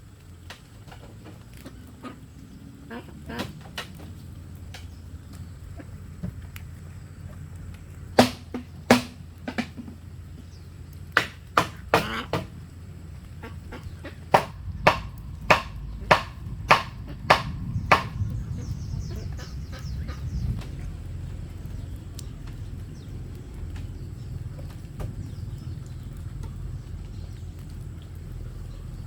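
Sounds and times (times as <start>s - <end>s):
tool striking bamboo: 8.2s - 10.0s, 11.1s - 12.5s, 14.3s - 18.2s.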